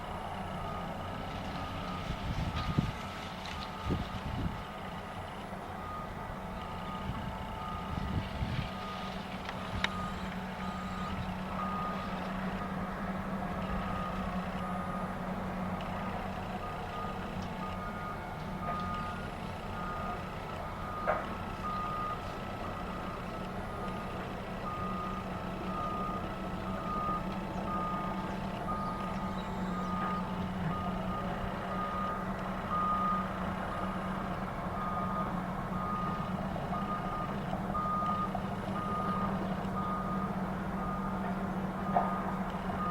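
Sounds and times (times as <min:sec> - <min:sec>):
diesel engines droning: 0:00.0 - 0:42.9
backup alarm beeping: 0:09.6 - 0:12.0.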